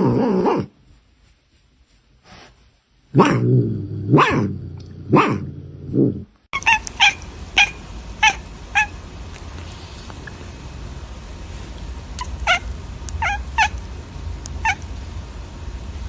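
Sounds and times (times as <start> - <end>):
animal yelps or meows: 6.6 - 9.0, 12.2 - 13.8, 14.6 - 14.8
low hum: 6.6 - 16.0.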